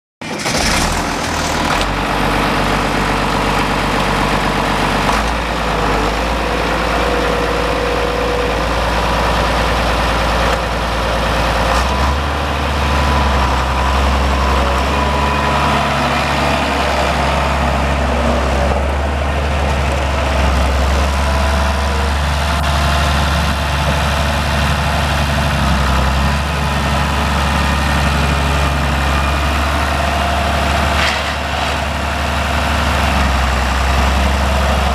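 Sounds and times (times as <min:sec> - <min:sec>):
tractor diesel engine idling: 0:00.2 - 0:34.9.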